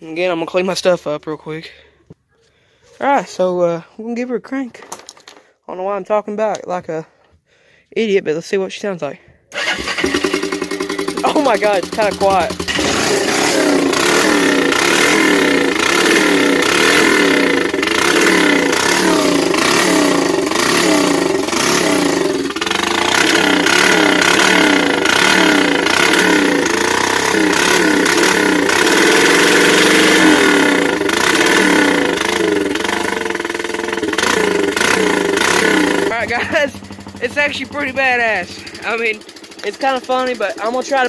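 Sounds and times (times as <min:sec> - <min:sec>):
atv engine revving: 0:09.5 - 0:41.0.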